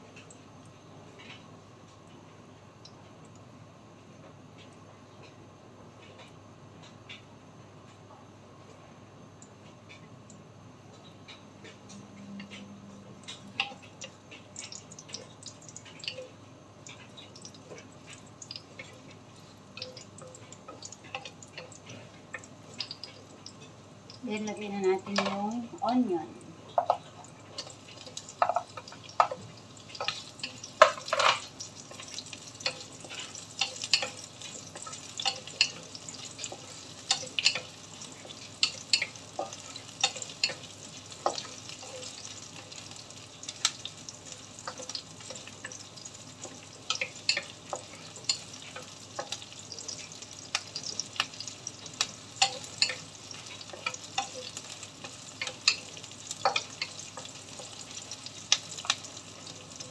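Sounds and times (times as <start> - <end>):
onions sizzling in hot oil: 13.2 - 59.9
wooden spatula tapping and scraping pan: 26.8 - 42.4, 52.0 - 57.9.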